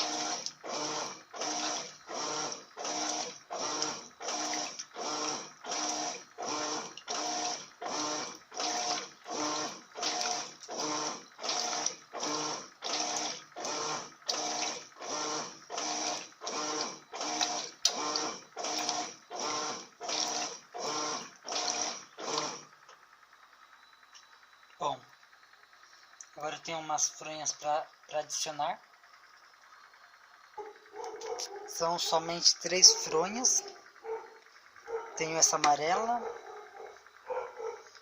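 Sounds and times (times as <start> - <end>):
washing machine swishing water: 0.0 - 22.7
motor hum: 0.0 - 38.0.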